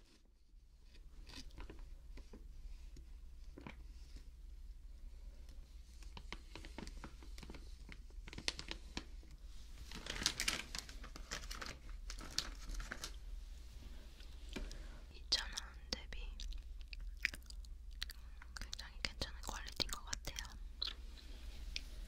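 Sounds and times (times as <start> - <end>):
plastic wrapper crinkling: 6.0 - 13.3.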